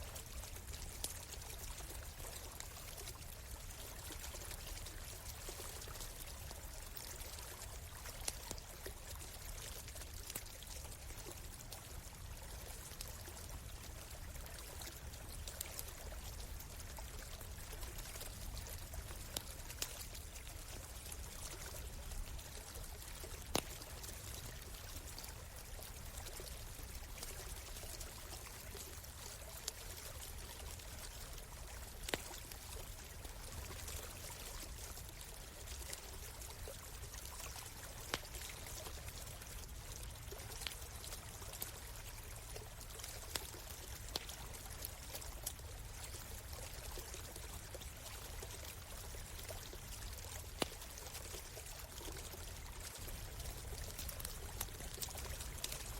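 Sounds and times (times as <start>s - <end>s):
stream flowing: 0.0s - 55.9s
campfire crackling and popping: 9.8s - 41.7s, 42.6s - 46.6s, 49.3s - 55.9s.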